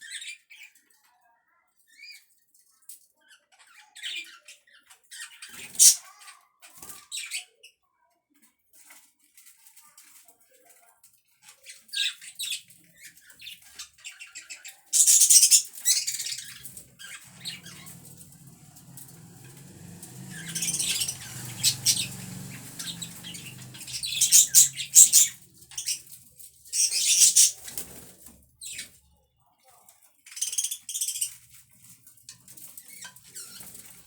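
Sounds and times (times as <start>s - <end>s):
budgerigars chirping: 5.6s - 6.0s, 15.0s - 26.1s, 26.7s - 28.0s
wings flapping and rustling: 15.0s - 29.0s, 30.3s - 34.0s.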